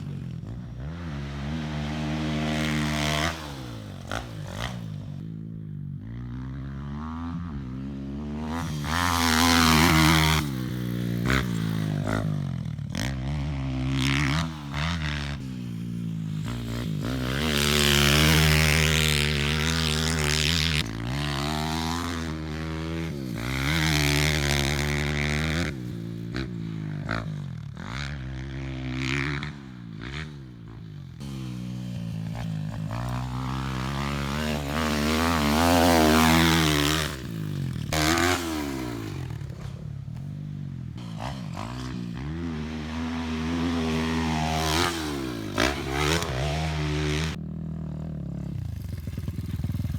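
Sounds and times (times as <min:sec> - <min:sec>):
pit bike engine revving: 0:00.0 - 0:49.9.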